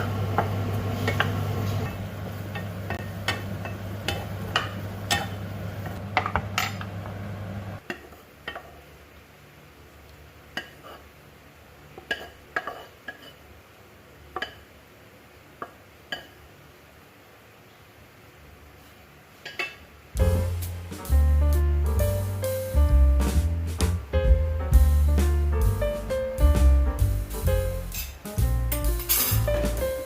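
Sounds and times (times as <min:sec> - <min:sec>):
utensils clinking against dishes: 0:27.8 - 0:29.8.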